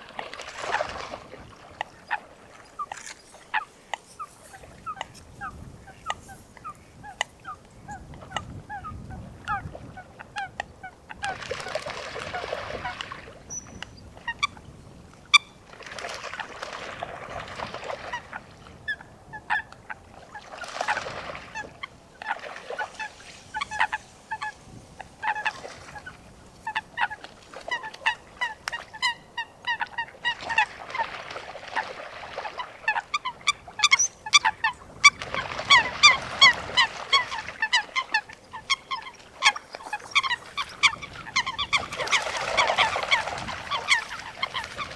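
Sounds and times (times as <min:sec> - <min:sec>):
coots calling: 0:01.5 - 0:09.6, 0:21.6 - 0:31.2, 0:32.4 - 0:44.9.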